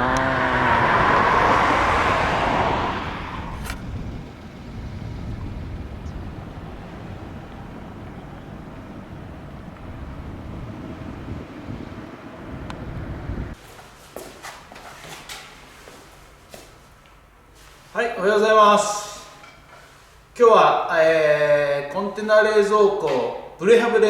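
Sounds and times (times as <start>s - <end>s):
low outdoor rumble: 0.0s - 13.6s
vehicle rushing past: 0.0s - 13.6s.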